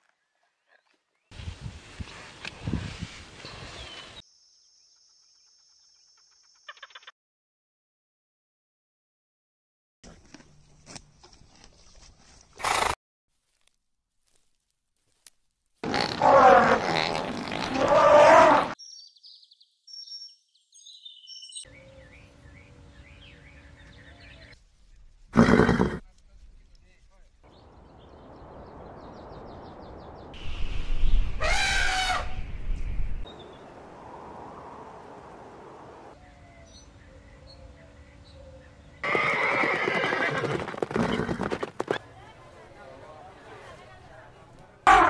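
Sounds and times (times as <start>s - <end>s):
outdoor background noise: 0.0s - 7.1s, 10.0s - 19.0s, 21.2s - 45.0s
small birds chirping: 18.8s - 31.2s.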